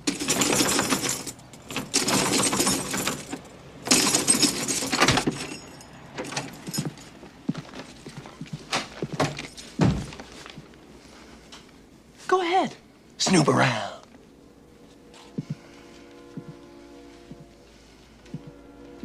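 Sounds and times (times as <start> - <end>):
noisy clattering and rattling: 0.0 - 10.5.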